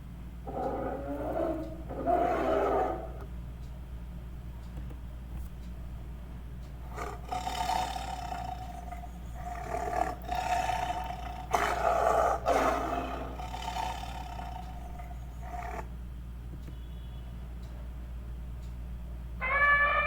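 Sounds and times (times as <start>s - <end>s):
large animal roaring: 0.4s - 3.3s, 6.9s - 15.9s.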